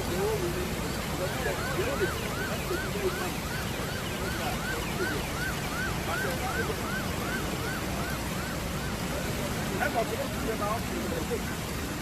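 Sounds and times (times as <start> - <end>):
steady rushing noise: 0.0 - 12.0
electronic siren chirping: 0.9 - 9.0.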